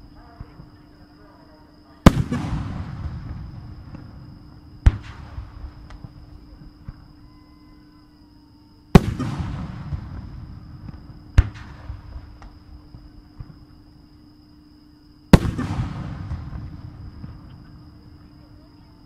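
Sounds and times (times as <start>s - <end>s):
small firework cracks: 2.0s - 7.1s, 9.0s - 13.7s, 15.3s - 18.1s
distant firework bursts: 2.0s - 7.2s, 8.9s - 13.9s, 15.3s - 18.7s.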